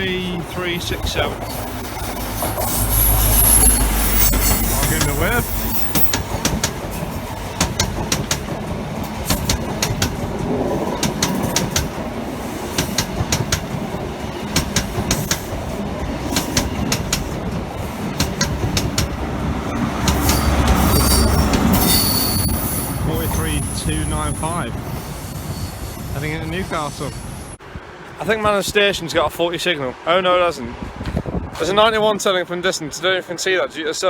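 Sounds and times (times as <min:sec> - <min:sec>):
high wheel squeal: 0:00.0 - 0:06.3, 0:19.7 - 0:27.6
train wheels clicking over rail joints: 0:00.0 - 0:25.4
train rumble: 0:00.0 - 0:33.1.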